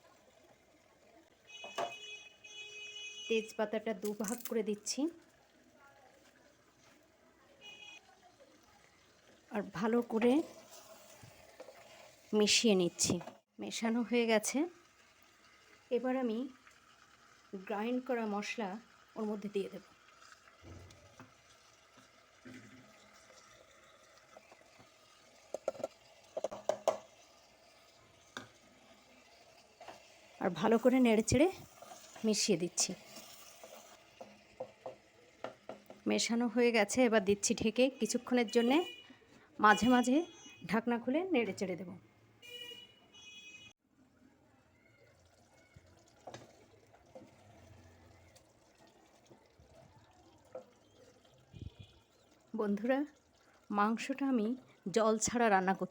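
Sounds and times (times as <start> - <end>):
chicken sizzling and bubbling: 0.0 - 3.3, 4.5 - 38.6, 43.7 - 55.9
spoon knocking on clay pot: 25.6 - 27.0.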